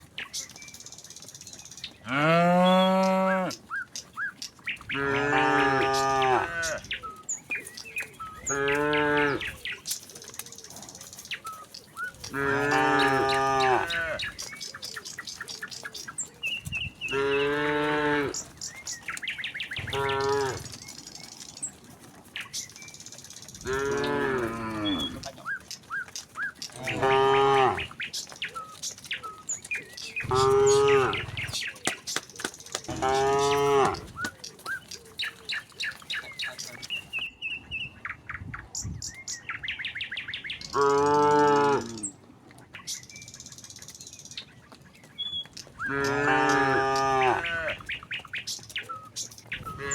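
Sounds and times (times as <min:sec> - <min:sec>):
birds chirping faintly: 0:00.0 - 0:49.9
cattle mooing: 0:02.1 - 0:03.6, 0:04.9 - 0:06.9, 0:08.4 - 0:09.5, 0:12.3 - 0:14.3, 0:17.0 - 0:18.5, 0:19.8 - 0:20.8, 0:23.6 - 0:25.3, 0:26.8 - 0:27.9, 0:30.2 - 0:31.6, 0:32.9 - 0:34.1, 0:40.7 - 0:42.1, 0:45.8 - 0:47.8, 0:49.7 - 0:49.9.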